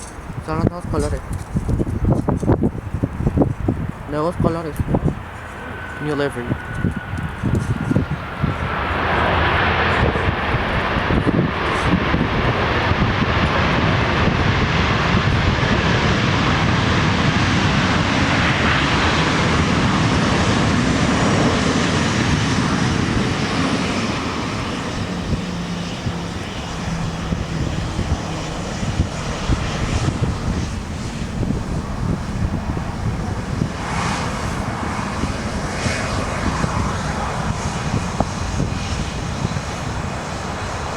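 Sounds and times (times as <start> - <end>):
jet engines passing: 0.0 - 40.9.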